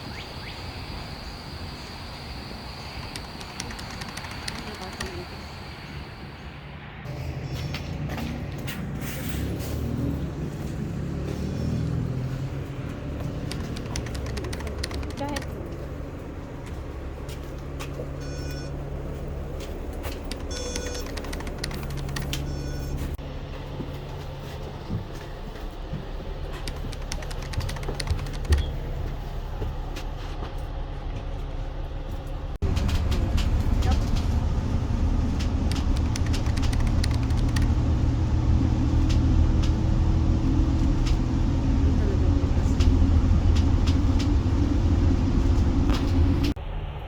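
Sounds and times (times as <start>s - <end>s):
road vehicle rumble: 0.0s - 47.0s
scattered clicks: 2.9s - 5.4s, 12.8s - 15.8s, 20.0s - 22.6s, 26.6s - 28.7s, 32.6s - 37.9s
low rumble: 31.4s - 47.0s
light clicks and rattles: 32.6s - 37.8s.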